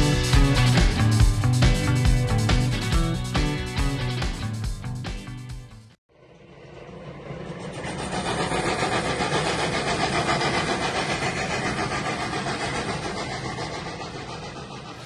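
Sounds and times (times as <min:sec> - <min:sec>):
train passing: 0:06.1 - 0:15.0.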